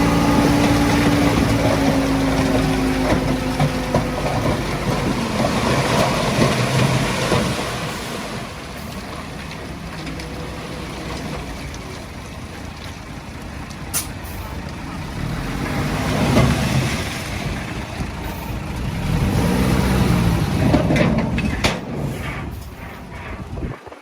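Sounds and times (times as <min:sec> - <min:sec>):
heavy diesel engine revving: 0:00.0 - 0:09.0, 0:13.9 - 0:23.7.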